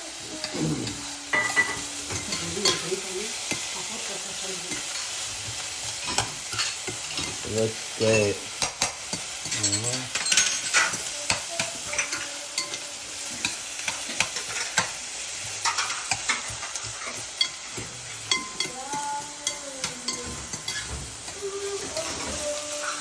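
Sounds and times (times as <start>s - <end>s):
onion sizzling in a pan: 0.0s - 23.0s
utensil scraping a pan: 8.1s - 23.0s.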